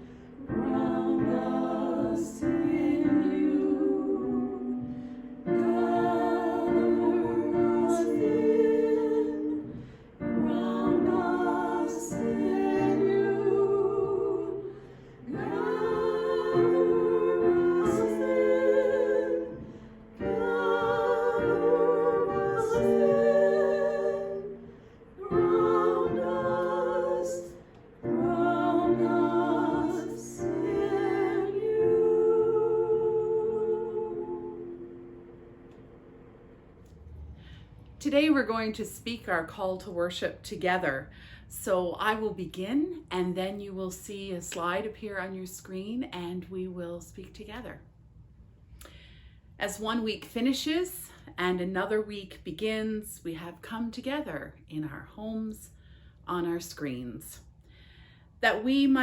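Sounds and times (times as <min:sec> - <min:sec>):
choir singing held notes: 0:00.0 - 0:37.6.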